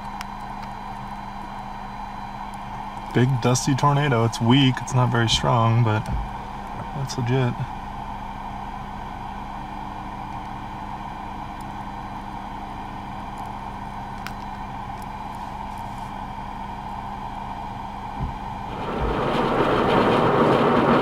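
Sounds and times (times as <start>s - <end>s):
vehicle engine humming: 18.2s - 21.0s.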